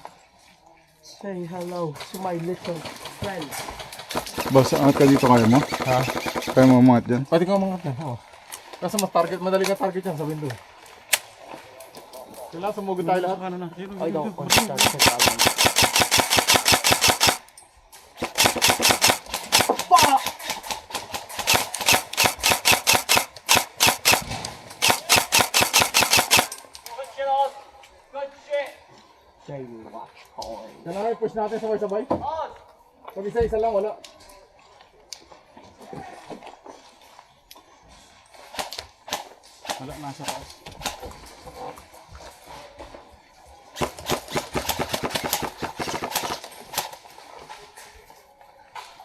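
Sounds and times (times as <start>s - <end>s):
airsoft guns firing: 3.2s - 7.0s, 14.5s - 17.5s, 18.2s - 26.9s, 43.8s - 47.0s.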